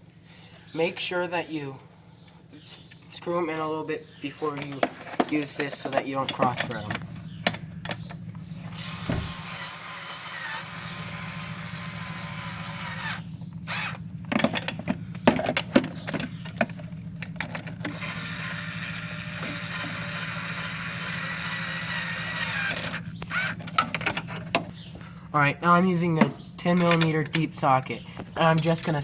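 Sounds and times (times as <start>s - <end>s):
clicks and knocks of parts: 4.5s - 9.6s, 13.7s - 18.6s, 21.7s - 25.0s, 26.2s - 27.5s, 28.2s - 29.0s
cordless drill running: 8.6s - 14.1s, 17.9s - 23.7s.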